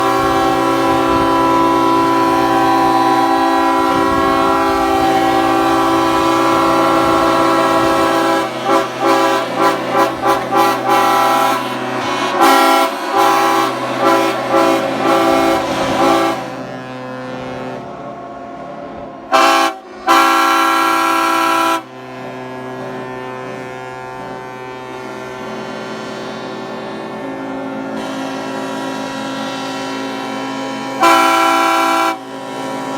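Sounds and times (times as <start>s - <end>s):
ship horns blasting: 0.0s - 32.9s.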